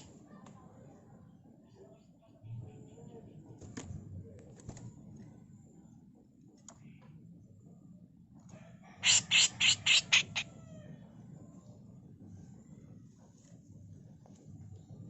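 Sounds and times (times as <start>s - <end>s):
bird harsh rasping calls: 9.0s - 10.5s.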